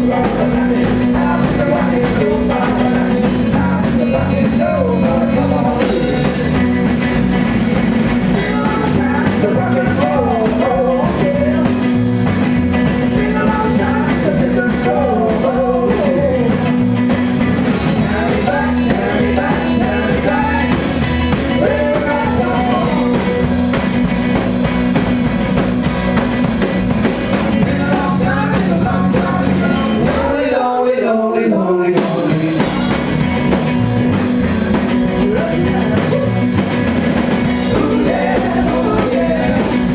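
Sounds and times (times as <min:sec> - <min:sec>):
person singing: 0:00.0 - 0:06.7, 0:08.3 - 0:12.1, 0:12.8 - 0:16.8, 0:17.9 - 0:23.5, 0:27.6 - 0:33.2, 0:34.3 - 0:36.8, 0:37.5 - 0:39.9
live rock band playing: 0:00.0 - 0:30.7, 0:32.0 - 0:39.9.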